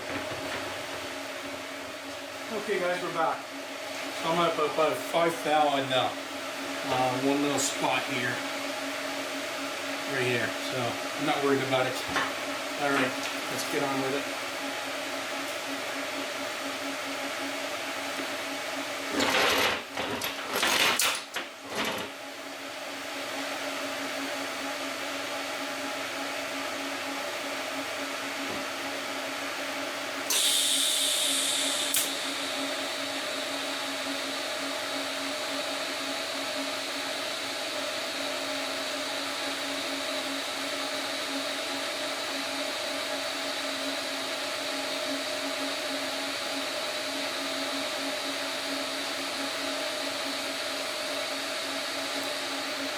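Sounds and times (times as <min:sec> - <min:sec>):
machine motor whine: 0:30.2 - 0:39.6
short high hiss: 0:30.3 - 0:32.2.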